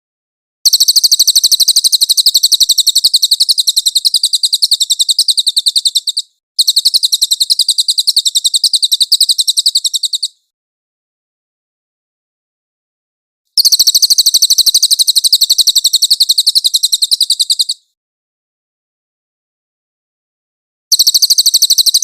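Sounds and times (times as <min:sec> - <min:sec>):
bird trilling: 0:00.7 - 0:10.4, 0:13.6 - 0:17.8.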